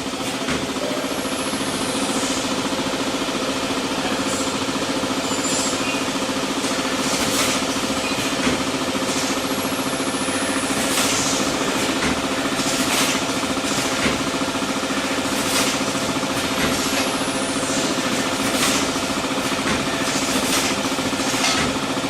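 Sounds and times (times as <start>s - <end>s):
packing machine pulsing hum: 0.0s - 22.0s.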